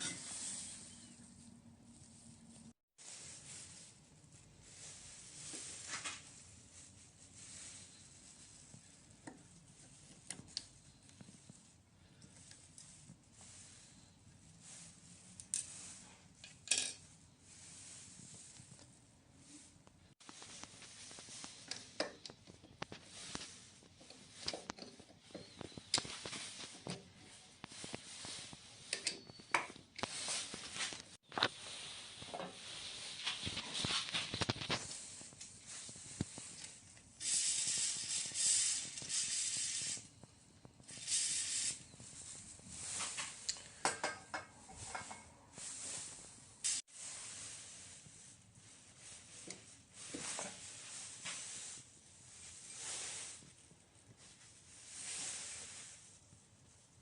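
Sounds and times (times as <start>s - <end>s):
faucet parts clicking and scraping: 16.4s - 17.1s, 24.0s - 26.1s, 28.9s - 30.1s, 43.2s - 45.3s.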